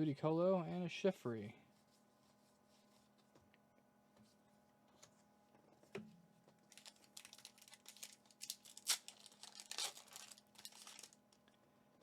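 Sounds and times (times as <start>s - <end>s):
foil wrapper tearing and crinkling: 6.6s - 11.4s.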